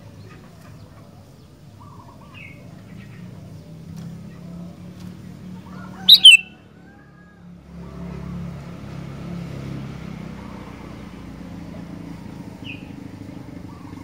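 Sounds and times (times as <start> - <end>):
bulbul two-note call: 6.1 - 6.4.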